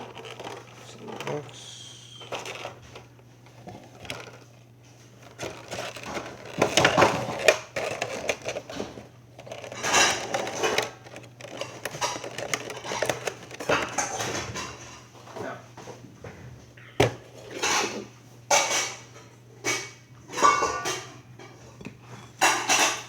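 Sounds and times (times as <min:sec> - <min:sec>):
cardboard box rustling and scraping: 0:05.2 - 0:13.9.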